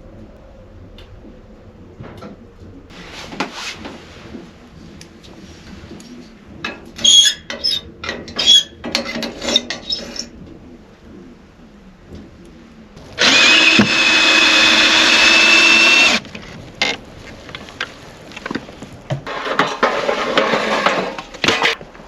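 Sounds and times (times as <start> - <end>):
scraping: 13.0 - 21.8.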